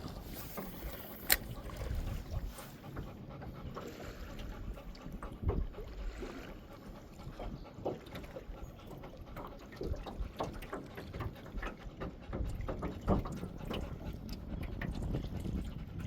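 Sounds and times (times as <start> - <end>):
low wind rumble: 0.0 - 7.8, 11.3 - 16.0
water lapping against boat hull: 0.0 - 16.0.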